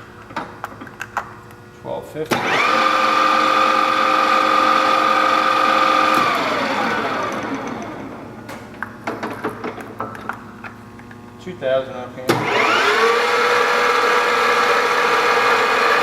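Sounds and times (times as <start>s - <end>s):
milling machine gear whine: 2.4s - 8.4s
machine clicks and clunks: 7.2s - 10.4s.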